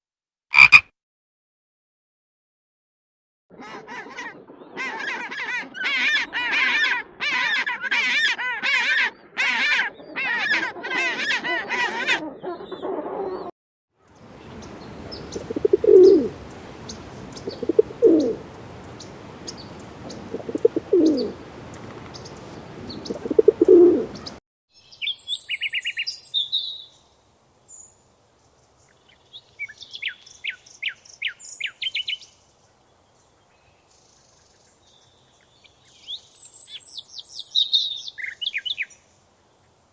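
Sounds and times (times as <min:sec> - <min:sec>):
bird honking calls: 0:00.5 - 0:00.8, 0:14.2 - 0:24.4
bird cooing: 0:14.2 - 0:24.4
bird chirps and trills: 0:14.2 - 0:27.0.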